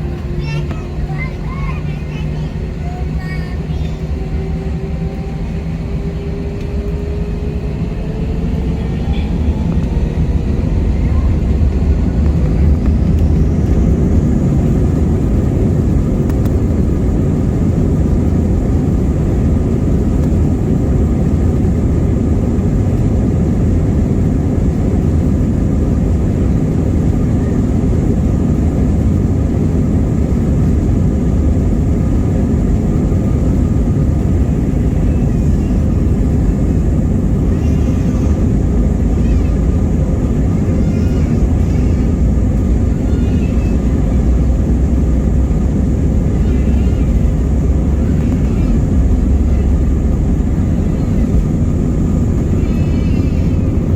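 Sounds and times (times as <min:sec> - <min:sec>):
jet engines rumbling in cabin: 0:00.0 - 0:53.9.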